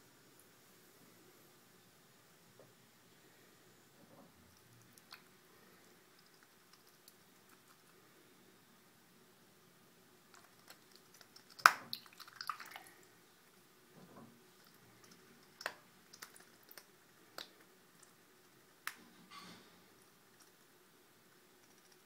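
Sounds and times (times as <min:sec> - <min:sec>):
duckling clicking and tapping: 0:06.1 - 0:08.0, 0:10.3 - 0:12.7, 0:14.6 - 0:19.0, 0:21.6 - 0:22.0
water splashing in bathtub: 0:10.9 - 0:13.1.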